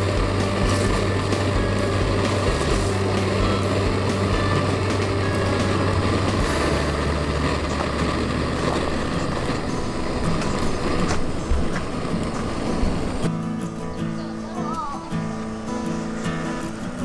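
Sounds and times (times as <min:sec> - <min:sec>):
vehicle engine running: 0:00.0 - 0:13.3
constant rushing noise: 0:00.0 - 0:17.0.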